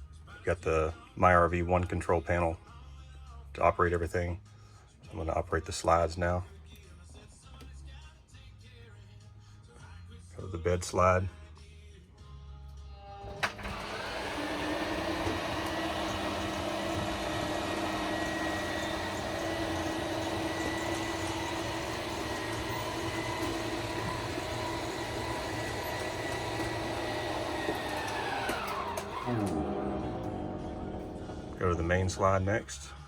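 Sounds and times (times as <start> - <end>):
electric motor whining: 13.0 - 32.0.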